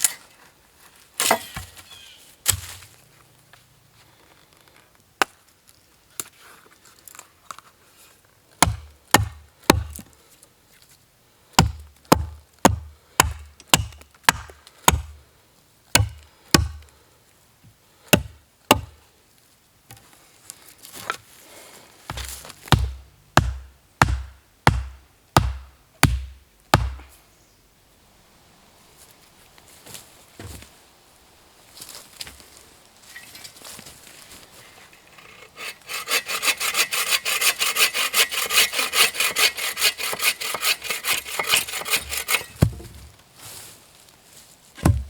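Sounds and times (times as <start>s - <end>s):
axe chopping wood: 2.5s - 2.8s, 8.6s - 10.1s, 11.6s - 15.2s, 15.9s - 16.8s, 18.2s - 19.0s, 22.1s - 27.1s, 38.0s - 43.1s, 44.8s - 45.0s.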